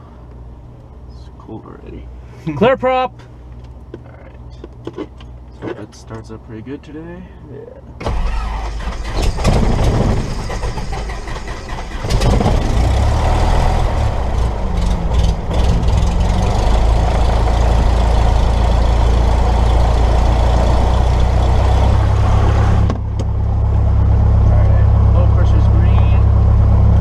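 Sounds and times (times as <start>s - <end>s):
propeller plane engine running: 8.0s - 27.0s.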